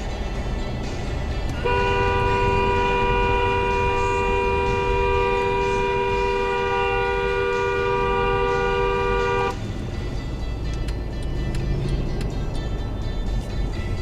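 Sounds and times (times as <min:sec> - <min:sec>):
road rumble: 0:00.0 - 0:14.0
vehicle horn two notes: 0:01.5 - 0:09.6.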